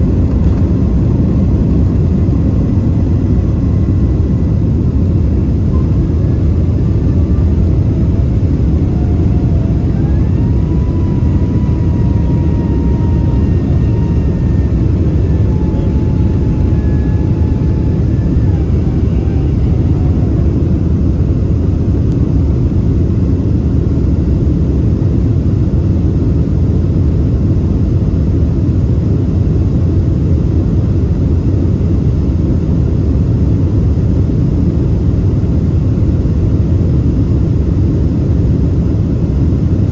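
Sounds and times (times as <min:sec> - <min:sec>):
faint whining tones: 0:00.0 - 0:26.0
jet airliner rumble: 0:00.0 - 0:39.9.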